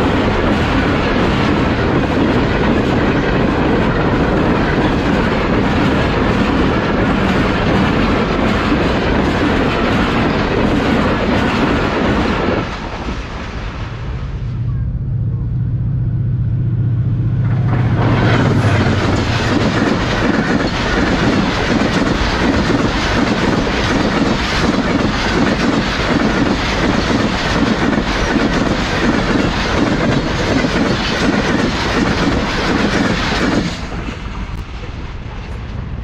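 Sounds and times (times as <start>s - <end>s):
train wheels clattering on rails: 0.0s - 13.8s, 17.4s - 36.0s
locomotive low drone: 12.2s - 23.8s.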